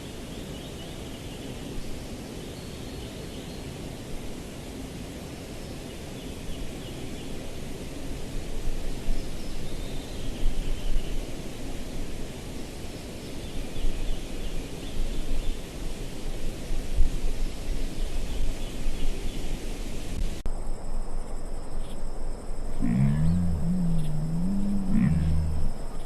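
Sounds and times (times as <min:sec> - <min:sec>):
low rumbling noise: 0:22.4 - 0:26.0
high-pitched bird or insect calls: 0:22.8 - 0:26.0.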